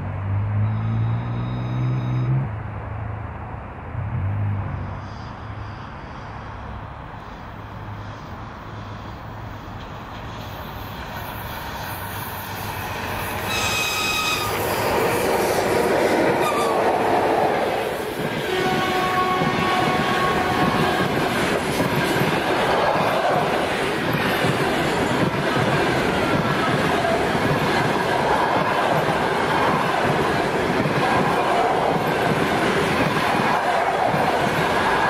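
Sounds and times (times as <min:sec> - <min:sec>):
train wheels rumbling on rails: 0:05.0 - 0:35.0
short high train horn blast: 0:13.4 - 0:17.2, 0:18.5 - 0:21.2
low steady train horn: 0:13.4 - 0:17.8, 0:18.4 - 0:21.6.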